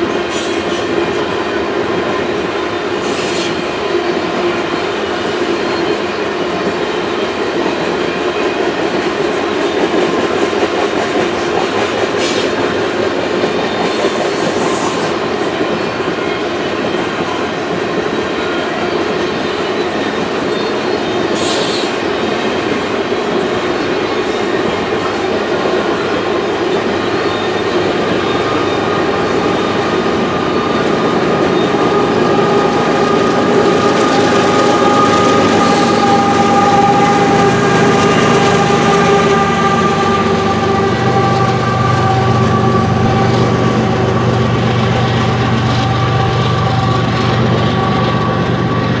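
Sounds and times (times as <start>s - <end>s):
diesel locomotive engine drone: 0.0s - 49.0s.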